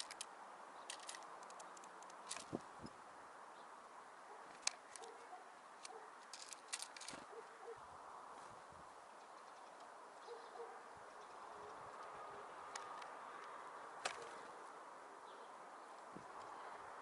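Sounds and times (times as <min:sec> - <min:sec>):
sharp clicks: 0:00.0 - 0:02.6
small songbirds calling: 0:00.0 - 0:06.4, 0:08.9 - 0:17.0
steady outdoor hiss: 0:00.0 - 0:17.0.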